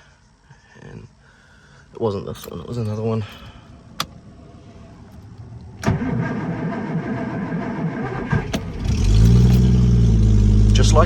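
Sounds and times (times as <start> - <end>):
car engine idling: 1.6 - 11.0
starter motor cranking: 2.4 - 4.3.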